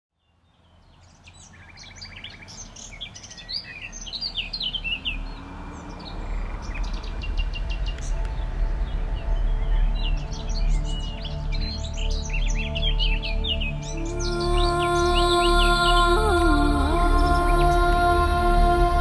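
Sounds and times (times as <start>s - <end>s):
songbirds chirping and whistling: 0.2s - 18.0s
soft music: 4.8s - 19.0s.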